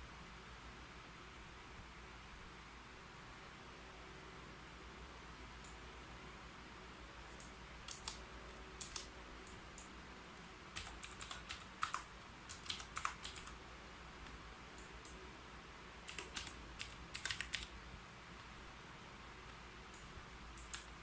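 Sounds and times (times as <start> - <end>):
keyboard key clicks: 7.4 - 8.2, 8.8 - 9.6, 10.8 - 13.6, 16.1 - 17.7, 20.0 - 20.9.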